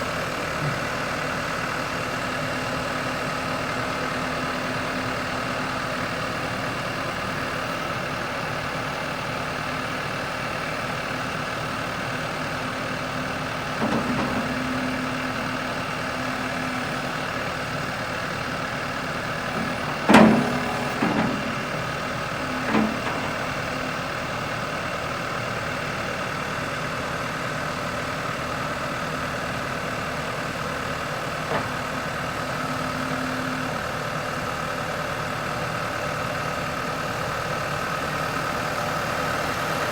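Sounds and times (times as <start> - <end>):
tractor engine idling: 0.0 - 39.9
brief knocks or clunks: 13.8 - 15.4, 19.5 - 23.6.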